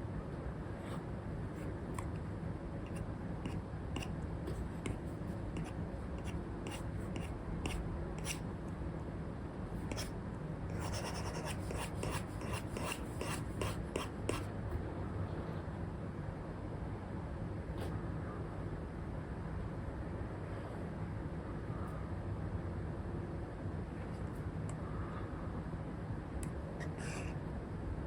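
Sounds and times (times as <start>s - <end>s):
low white noise: 0.0s - 28.0s
stylus scratching on screen: 2.9s - 8.4s, 10.8s - 14.4s.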